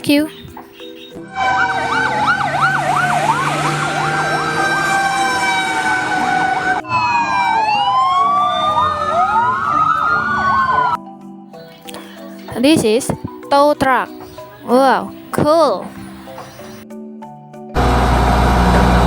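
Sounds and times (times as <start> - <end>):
fire engine sirens yelping: 1.2 - 11.0
sirens wailing: 1.2 - 11.0.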